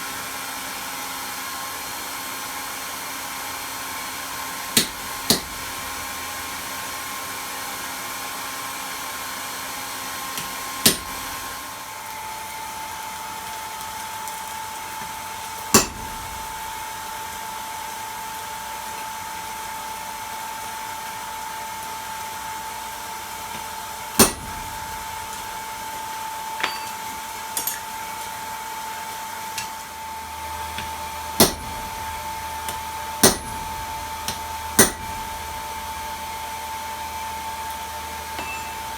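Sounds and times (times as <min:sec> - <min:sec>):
sharp metal strikes: 0:15.8 - 0:16.6, 0:24.2 - 0:25.4, 0:31.4 - 0:36.0, 0:38.4 - 0:38.9
air blower whining: 0:22.4 - 0:26.9, 0:28.8 - 0:38.9.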